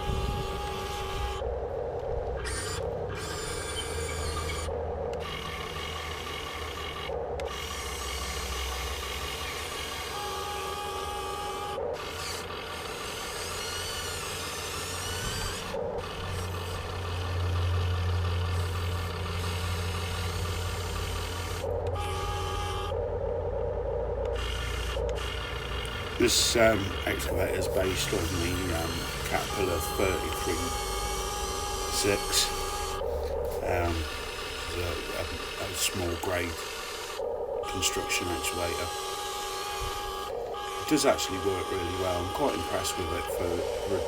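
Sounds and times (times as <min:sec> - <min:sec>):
servo motors whirring: 0:00.0 - 0:01.5, 0:02.3 - 0:23.0, 0:24.2 - 0:44.0
low hum: 0:00.0 - 0:44.0.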